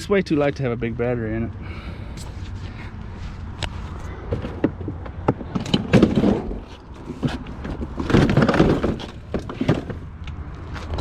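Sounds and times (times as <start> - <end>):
plastic toy truck clattering: 4.3 - 10.0.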